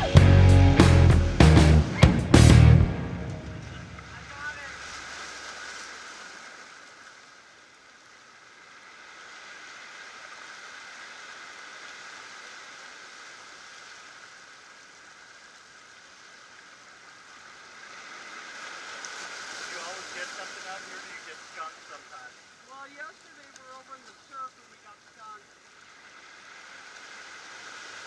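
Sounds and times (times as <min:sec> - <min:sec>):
waves washing over rocks: 0:03.5 - 0:07.1, 0:08.4 - 0:28.0.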